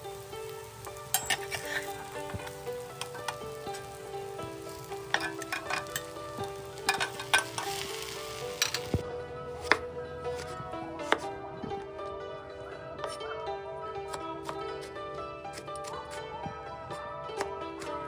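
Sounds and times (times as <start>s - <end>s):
bread sizzling in a pan: 0.0s - 9.0s
soft background music: 0.0s - 18.0s
metal tongs clicking on pan: 1.0s - 4.0s, 4.8s - 8.9s.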